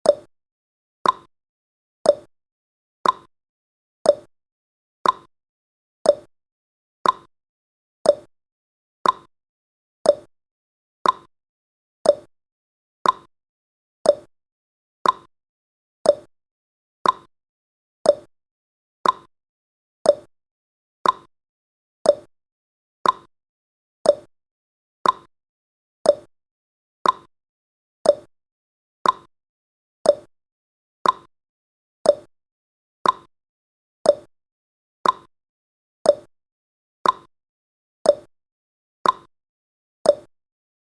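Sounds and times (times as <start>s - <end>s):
timer ticking: 0.0s - 0.3s, 1.0s - 1.3s, 2.0s - 2.3s, 3.0s - 3.3s, 4.0s - 4.3s, 5.0s - 5.3s, 6.0s - 6.3s, 7.0s - 7.3s, 8.0s - 8.3s, 9.0s - 9.3s, 10.0s - 10.3s, 11.0s - 11.3s, 12.0s - 12.3s, 13.0s - 13.3s, 14.0s - 14.3s, 15.0s - 15.3s, 16.0s - 16.3s, 17.0s - 17.3s, 18.0s - 18.3s, 19.0s - 19.3s, 20.0s - 20.3s, 21.0s - 21.3s, 22.0s - 22.3s, 23.0s - 23.3s, 24.0s - 24.3s, 25.0s - 25.3s, 26.0s - 26.3s, 27.0s - 27.3s, 28.0s - 28.3s, 29.0s - 29.3s, 30.0s - 30.3s, 31.0s - 31.3s, 32.0s - 32.3s, 33.0s - 33.3s, 34.0s - 34.3s, 35.0s - 35.3s, 36.0s - 36.3s, 37.0s - 37.3s, 38.1s - 38.3s, 39.0s - 39.3s, 40.1s - 40.3s.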